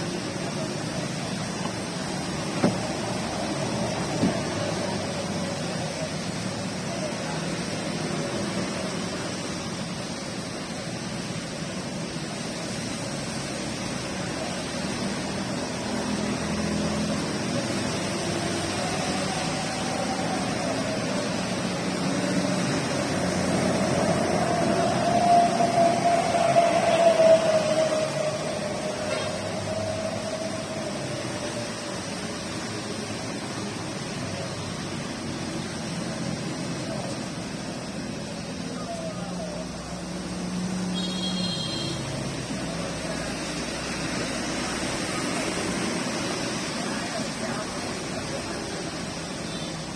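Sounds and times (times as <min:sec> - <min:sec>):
steady rain hiss: 0:00.0 - 0:49.9
passing vehicle engine: 0:12.4 - 0:40.9.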